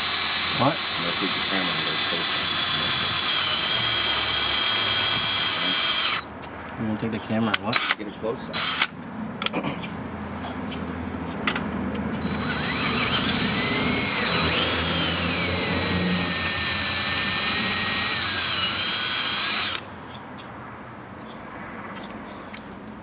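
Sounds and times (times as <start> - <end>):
electric drill whining: 0.0 - 6.3, 8.6 - 8.9, 12.2 - 19.8.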